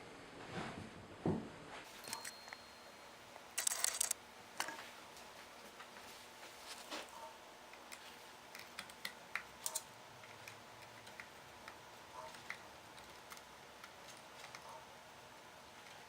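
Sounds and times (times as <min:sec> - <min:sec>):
clicks of small parts and screws: 0:03.6 - 0:04.8, 0:07.7 - 0:14.7.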